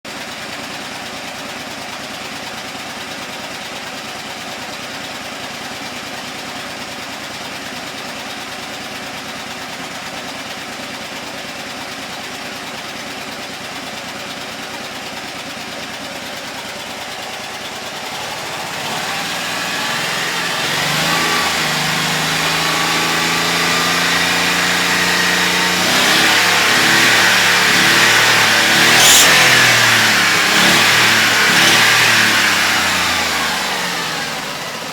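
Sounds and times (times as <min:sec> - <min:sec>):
small petrol engine running and revving: 0:00.1 - 0:34.9
brief sharp sound: 0:28.7 - 0:32.6.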